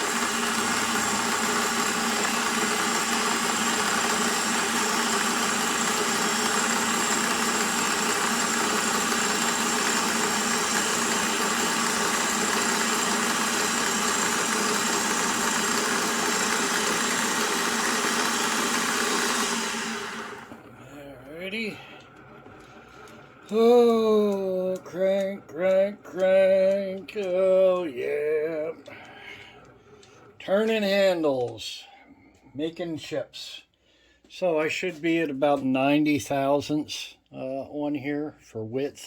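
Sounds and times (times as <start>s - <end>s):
milling machine cutting steel: 0.0s - 22.0s, 22.6s - 29.6s.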